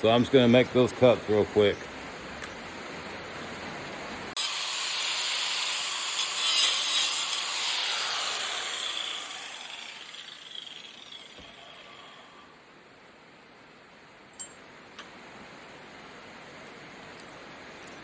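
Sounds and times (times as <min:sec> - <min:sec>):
angle grinder cutting metal: 0:04.4 - 0:12.4.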